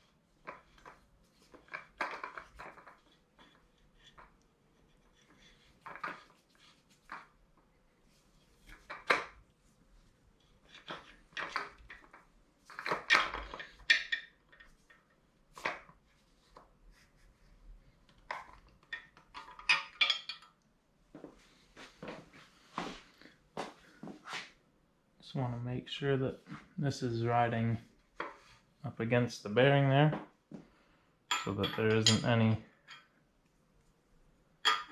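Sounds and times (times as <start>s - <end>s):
metal tool clinking and knocking: 10.7s - 15.1s, 18.3s - 20.6s, 31.3s - 33.1s, 34.6s - 34.9s.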